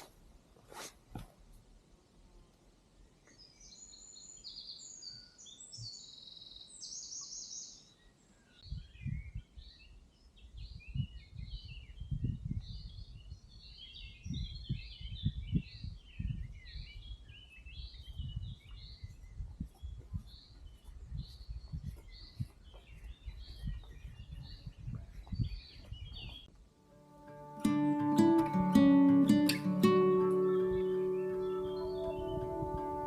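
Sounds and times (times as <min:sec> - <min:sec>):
songbirds singing and chirping: 0:03.0 - 0:33.0.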